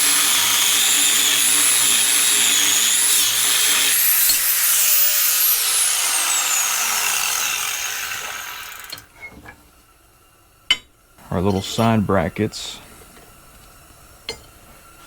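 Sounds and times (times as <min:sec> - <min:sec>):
power tool cutting steel: 0:00.0 - 0:09.1.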